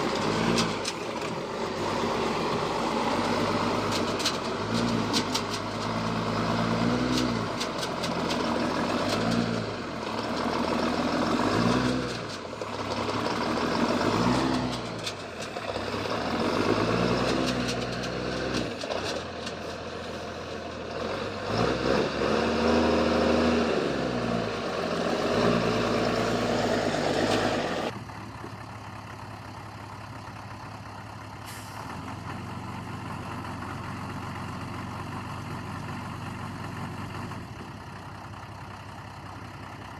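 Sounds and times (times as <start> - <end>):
heavy machine engine revving: 0.0 - 28.0.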